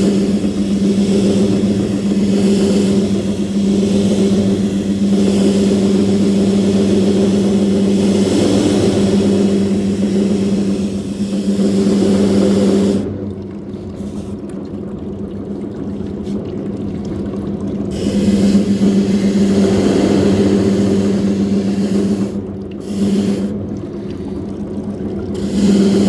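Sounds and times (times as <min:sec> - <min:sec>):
washing machine motor hum: 0:00.0 - 0:14.0, 0:14.6 - 0:26.0.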